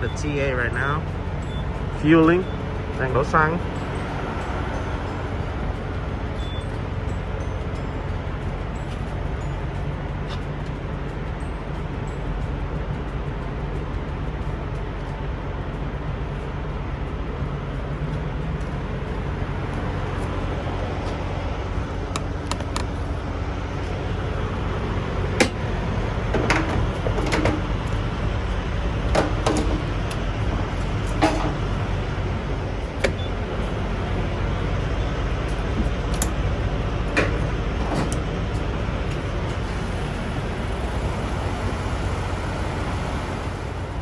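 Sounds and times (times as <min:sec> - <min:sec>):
diesel trucks idling: 0:00.0 - 0:44.0
clunks and knocks: 0:18.6 - 0:43.9.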